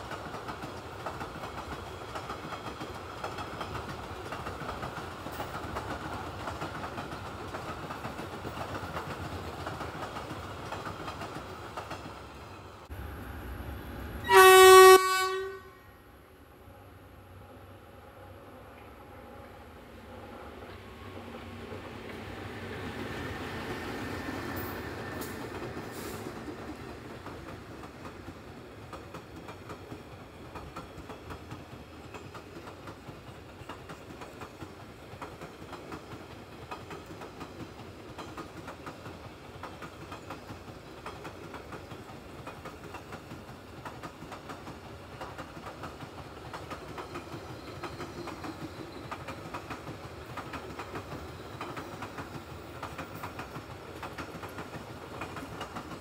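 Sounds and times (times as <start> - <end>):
train wheels clattering over rail joints: 0.0 - 12.4, 24.2 - 56.0.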